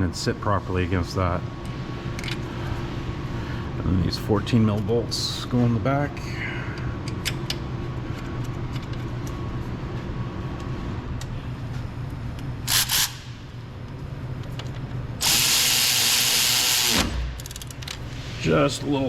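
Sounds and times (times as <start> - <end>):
steady low hum: 0.0 - 19.0
power tool driving bolts: 12.7 - 13.2, 15.2 - 17.6.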